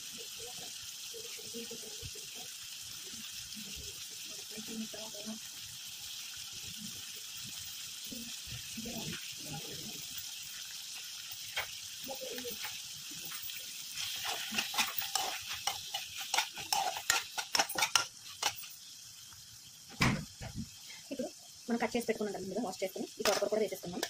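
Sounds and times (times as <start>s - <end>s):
vegetables sizzling in hot oil: 0.0s - 24.0s
utensil scraping pan: 12.6s - 18.8s.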